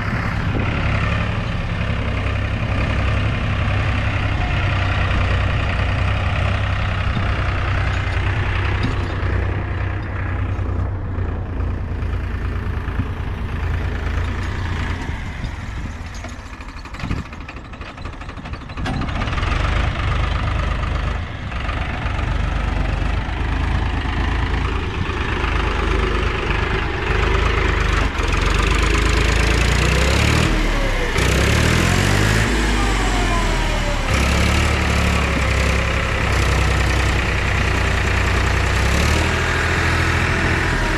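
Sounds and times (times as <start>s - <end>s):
engine revving: 0.0s - 10.6s, 19.1s - 40.9s
diesel engines running: 0.0s - 40.9s.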